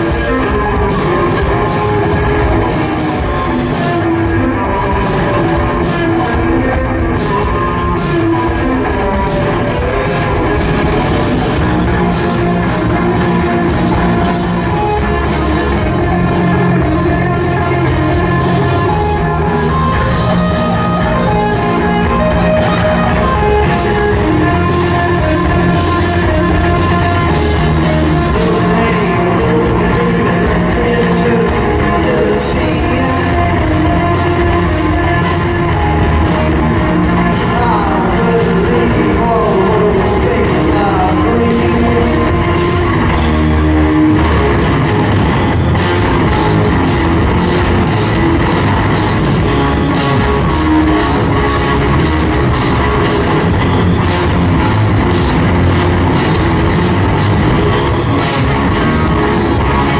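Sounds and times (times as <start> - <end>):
vocals: 0.0 - 47.2
drums keeping a beat: 0.0 - 59.9
electric guitar: 0.0 - 59.9
live rock band playing: 0.0 - 59.9.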